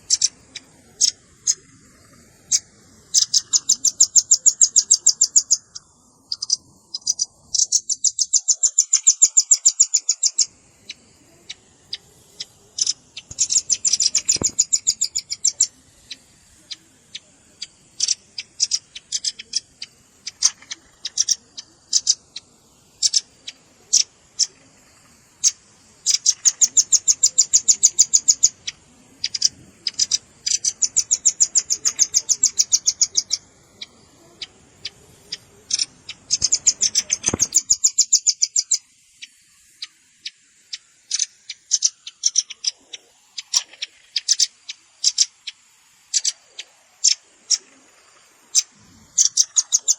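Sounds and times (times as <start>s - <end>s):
single bird chips: 12.8s - 16.2s, 35.3s - 38.6s
bird trills of sharp chips: 12.8s - 16.8s, 25.4s - 38.8s, 39.8s - 47.7s, 48.6s - 49.9s.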